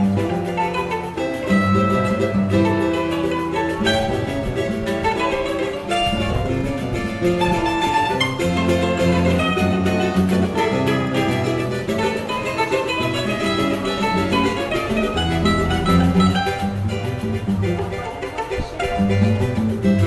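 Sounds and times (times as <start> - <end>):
guitar bass line: 0.0 - 20.0
quick plucked melody: 0.0 - 20.0.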